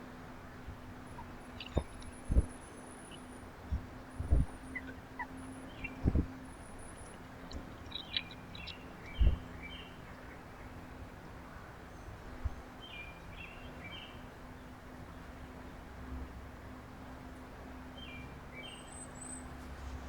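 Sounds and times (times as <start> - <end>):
steady low hum: 0.0 - 18.0
small songbirds chirping: 1.0 - 14.7, 18.0 - 19.6.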